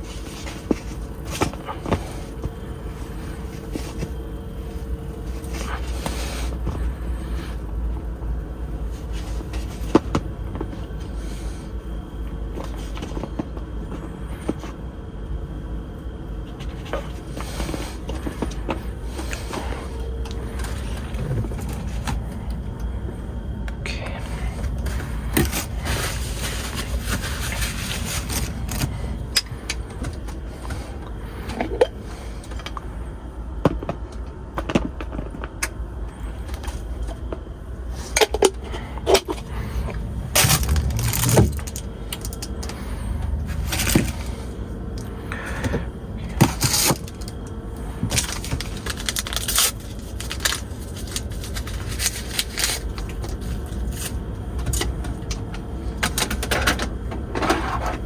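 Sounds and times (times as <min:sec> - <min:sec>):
steady low rumble: 0:00.0 - 0:58.0
objects being handled: 0:24.6 - 0:32.8, 0:37.9 - 0:47.4.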